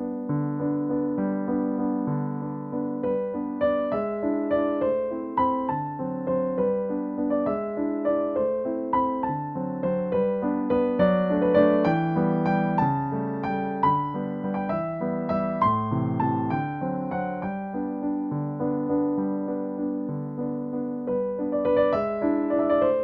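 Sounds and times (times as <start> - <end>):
gentle piano melody: 0.0 - 23.0.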